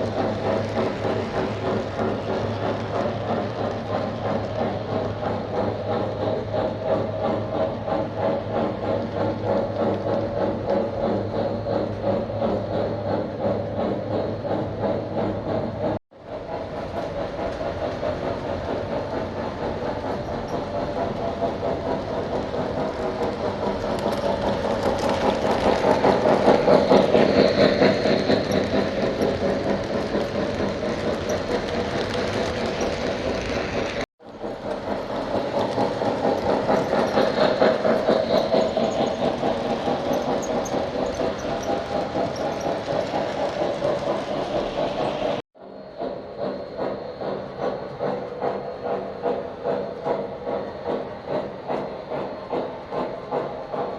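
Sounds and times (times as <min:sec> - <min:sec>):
wheels clattering on rails: 0:00.0 - 0:45.4
toy train motor hum: 0:19.4 - 0:33.8, 0:34.9 - 0:44.6.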